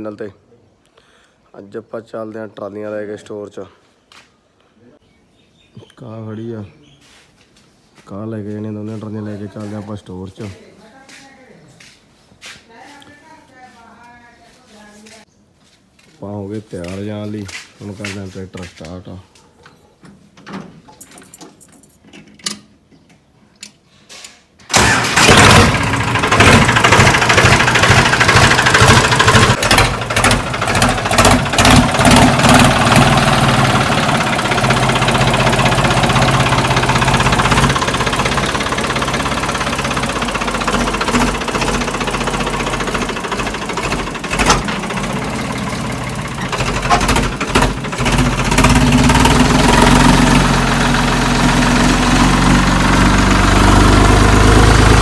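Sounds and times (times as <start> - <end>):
tractor engine starting and running: 24.7 - 55.0.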